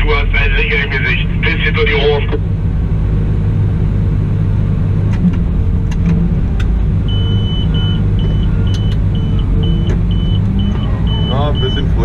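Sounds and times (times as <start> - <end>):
diesel engine running: 0.0 - 12.0
reversing alarm beeping: 7.1 - 12.0.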